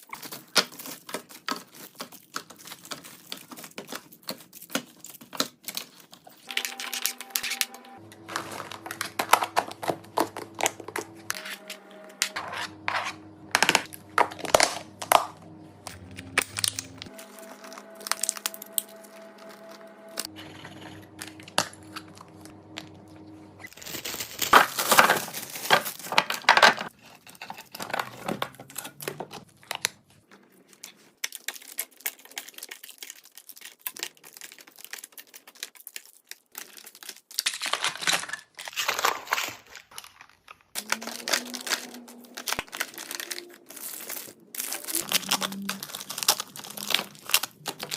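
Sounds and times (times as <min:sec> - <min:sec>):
packaging crinkling and tearing: 0:00.0 - 0:20.3, 0:23.6 - 0:27.0, 0:27.7 - 0:47.9
soft background music: 0:06.5 - 0:23.8.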